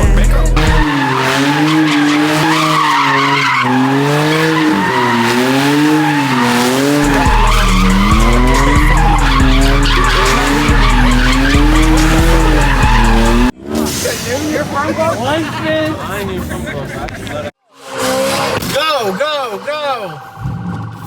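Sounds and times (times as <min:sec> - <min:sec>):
rap track bass beat: 0:00.0 - 0:02.5, 0:03.9 - 0:13.5
car tyres squealing: 0:00.0 - 0:21.0.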